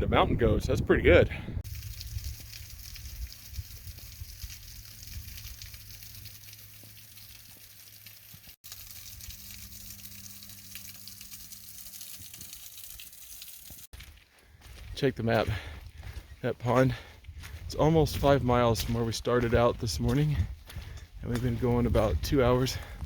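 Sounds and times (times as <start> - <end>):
wind on microphone: 0.0 - 5.4.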